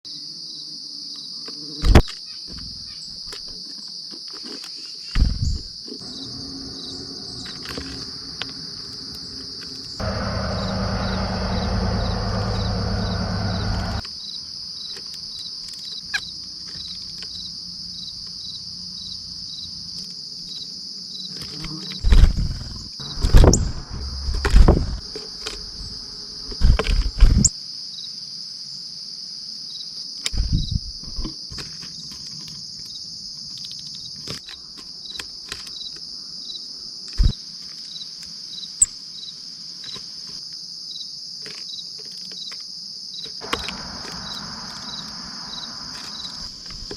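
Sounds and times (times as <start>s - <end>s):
insects chirring: 0.1s - 46.9s
low rushing noise: 6.0s - 14.0s, 23.0s - 25.1s
sharp low thumps: 22.1s - 25.1s.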